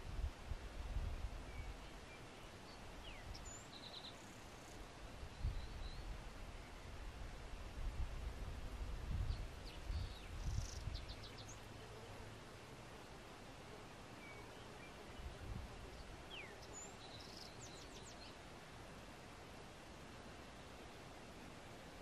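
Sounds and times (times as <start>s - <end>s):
outdoor hiss: 0.0s - 22.0s
small birds chirping: 1.5s - 7.0s, 9.1s - 12.0s, 14.1s - 18.5s.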